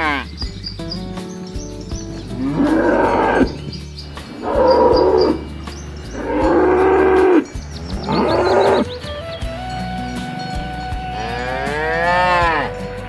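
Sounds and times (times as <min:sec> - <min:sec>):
cattle mooing: 0:02.4 - 0:03.6, 0:04.4 - 0:05.5, 0:06.2 - 0:08.9, 0:11.1 - 0:13.0.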